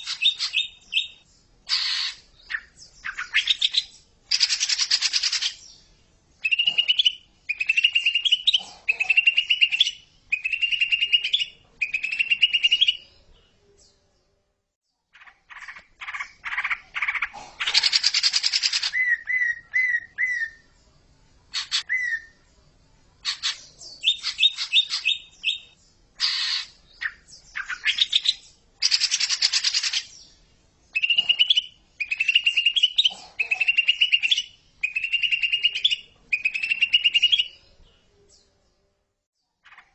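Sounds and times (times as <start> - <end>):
bird harsh chatters and whistles: 0.0 - 5.6, 6.4 - 13.0, 15.2 - 20.6, 21.5 - 22.4, 23.2 - 30.2, 30.9 - 37.6
bird trilled calls: 0.0 - 5.6, 6.4 - 13.0, 23.2 - 30.2, 30.9 - 37.6.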